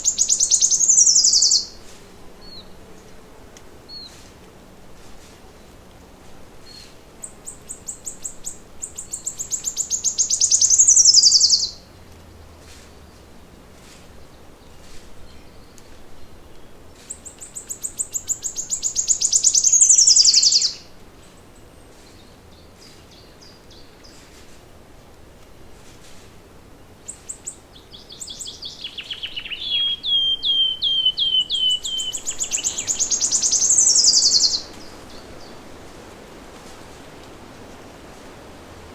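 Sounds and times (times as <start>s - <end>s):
faint bird chirps: 0.0s - 1.8s, 6.6s - 11.8s, 17.1s - 20.8s, 27.1s - 35.6s
songbird singing: 0.0s - 3.2s, 3.9s - 4.8s, 6.6s - 13.3s, 14.0s - 24.4s, 26.7s - 38.9s.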